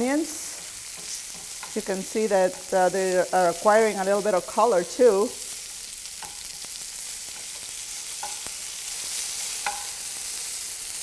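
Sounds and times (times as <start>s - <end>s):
onions sizzling in oil: 0.0s - 11.0s
metal tongs clicking on pan: 6.2s - 6.6s, 7.3s - 8.5s, 9.5s - 10.0s.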